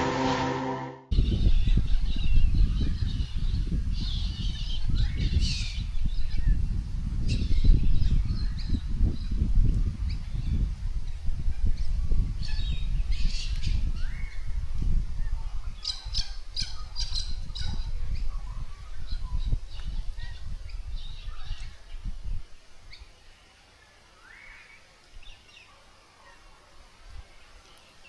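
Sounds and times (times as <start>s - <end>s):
wind rumble on microphone: 1.1s - 22.7s.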